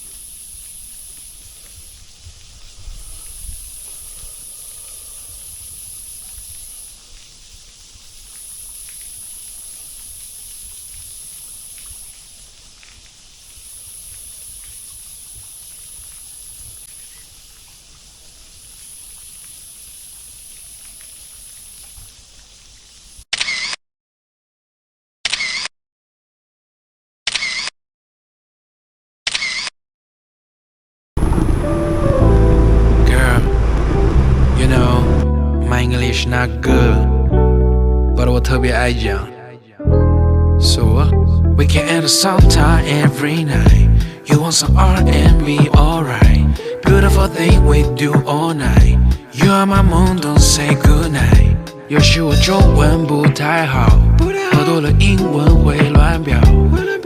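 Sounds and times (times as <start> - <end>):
camera shutter clicks: 23.3 - 23.8, 25.3 - 25.7, 27.3 - 27.7, 29.3 - 29.7.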